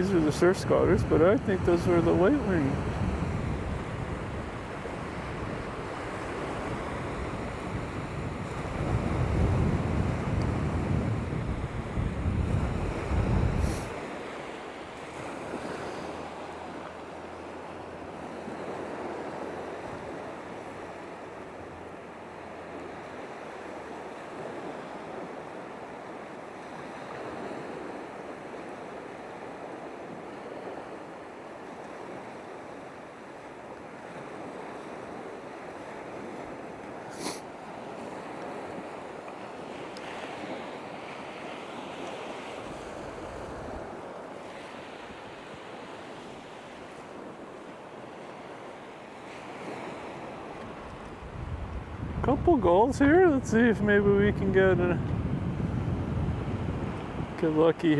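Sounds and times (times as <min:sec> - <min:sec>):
wind rumbling on microphone: 0:00.0 - 0:25.0, 0:42.1 - 0:47.6, 0:49.4 - 0:57.9
surf washing on shore: 0:00.0 - 0:57.9.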